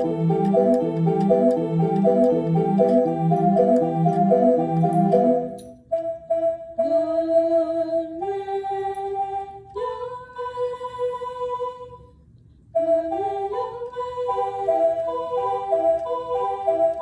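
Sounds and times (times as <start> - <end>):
slow sung melody: 0.0 - 12.0.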